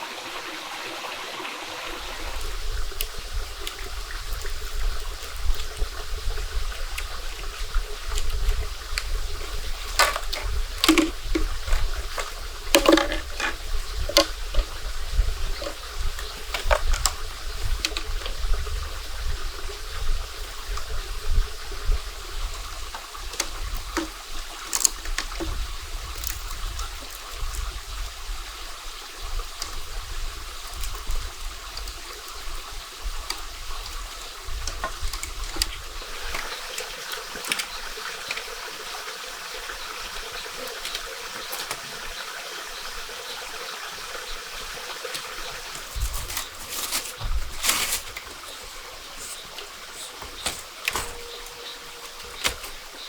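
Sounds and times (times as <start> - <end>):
water trickling: 0.0 - 53.0
sharp clicks and knocks: 9.9 - 14.8.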